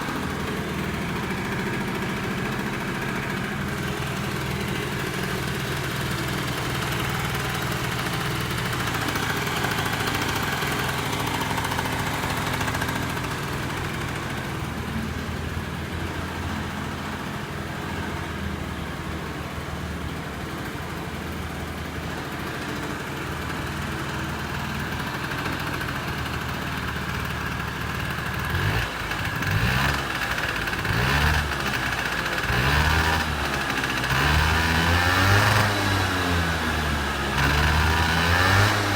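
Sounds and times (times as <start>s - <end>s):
scooter throttle blips: 0.0s - 15.5s, 23.4s - 38.9s
scooter engine idling: 0.0s - 38.9s.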